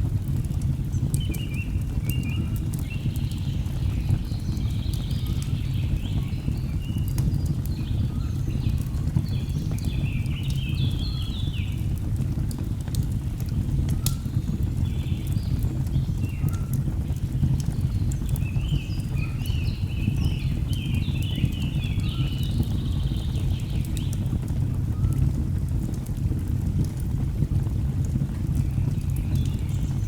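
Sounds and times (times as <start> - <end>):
logs crackling in fireplace: 0.0 - 30.0.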